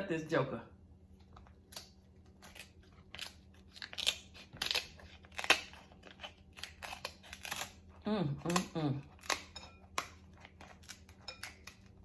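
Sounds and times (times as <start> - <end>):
shears cutting crab shell: 1.7 - 7.9.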